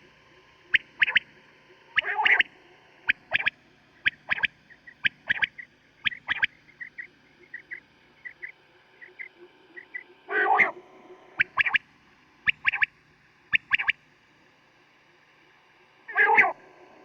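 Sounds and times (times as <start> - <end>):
quail calling: 0.7 - 1.2, 2.0 - 2.5, 3.1 - 10.7, 11.4 - 11.8, 12.4 - 12.9, 13.5 - 14.0, 16.1 - 16.6.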